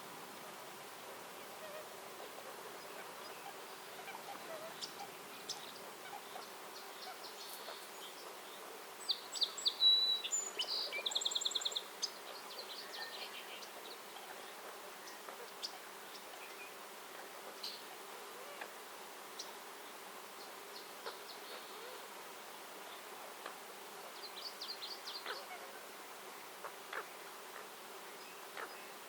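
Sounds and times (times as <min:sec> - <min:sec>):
faint steady hiss: 0:00.0 - 0:29.0
other birds chirping: 0:01.6 - 0:16.8
songbird chirping and trilling: 0:02.7 - 0:16.8, 0:24.1 - 0:25.6.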